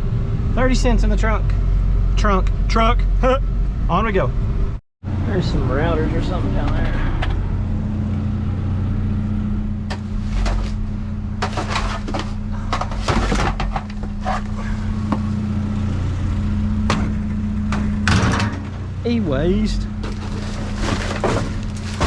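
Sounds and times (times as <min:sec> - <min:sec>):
truck engine running: 0:00.0 - 0:22.0
knocks and rattles: 0:09.9 - 0:15.3, 0:16.8 - 0:19.0, 0:20.0 - 0:22.0.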